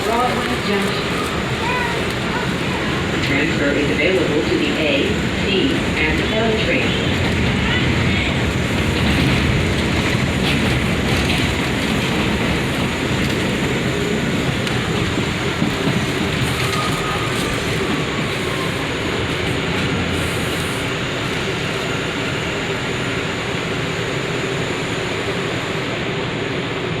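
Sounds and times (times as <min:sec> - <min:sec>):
subway train rumbling on rails: 0:00.0 - 0:27.0.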